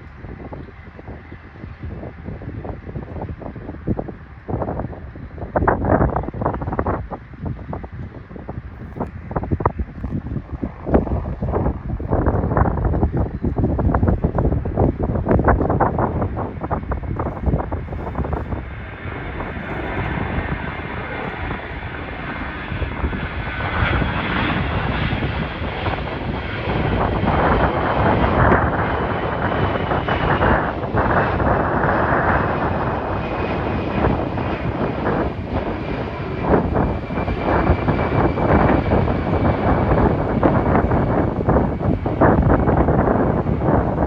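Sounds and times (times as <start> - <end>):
jet engines roaring: 0.0 - 44.0.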